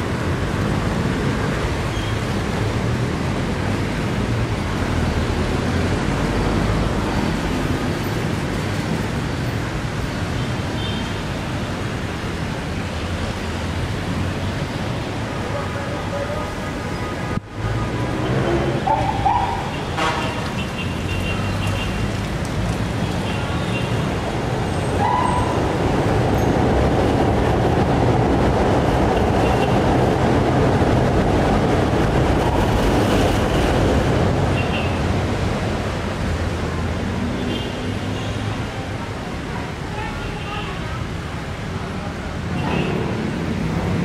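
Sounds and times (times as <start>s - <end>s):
street traffic: 0.0s - 44.0s
train rumbling past overhead: 25.0s - 34.5s.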